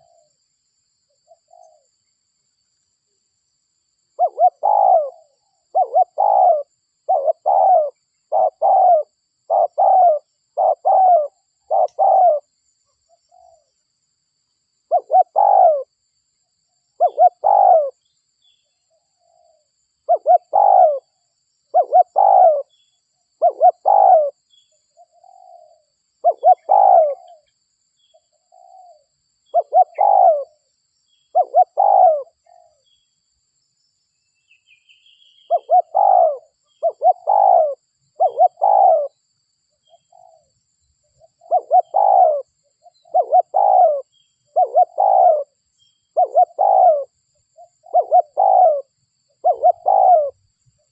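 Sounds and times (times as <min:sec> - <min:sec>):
dove cooing: 0:00.0 - 0:00.3, 0:01.3 - 0:01.9, 0:04.2 - 0:12.5, 0:14.9 - 0:15.9, 0:17.0 - 0:18.0, 0:19.2 - 0:22.8, 0:23.4 - 0:24.4, 0:25.0 - 0:27.5, 0:28.4 - 0:30.6, 0:31.3 - 0:32.8, 0:35.5 - 0:39.2, 0:39.8 - 0:40.5, 0:41.2 - 0:50.9.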